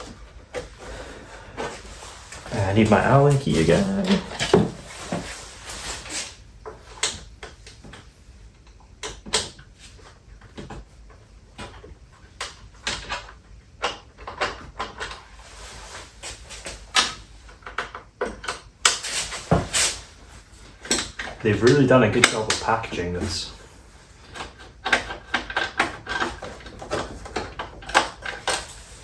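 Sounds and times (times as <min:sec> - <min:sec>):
clicks and knocks of handling: 0:06.6 - 0:15.3, 0:16.2 - 0:19.9, 0:20.6 - 0:23.0, 0:24.2 - 0:29.0.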